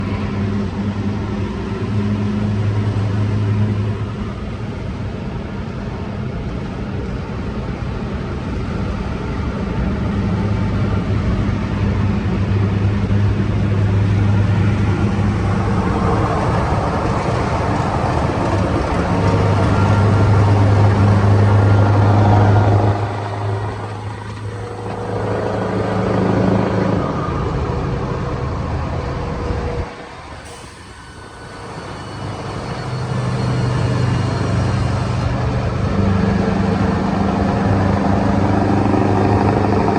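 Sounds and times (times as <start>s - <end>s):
diesel truck engine drone: 0.0s - 39.9s.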